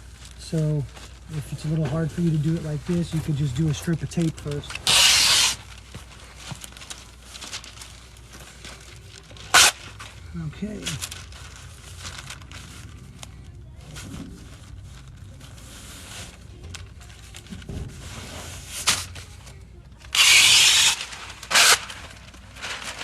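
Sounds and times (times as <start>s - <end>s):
paper rustling: 0.0s - 23.0s
masking tape ripping: 4.3s - 5.8s, 9.0s - 10.1s, 20.1s - 23.0s.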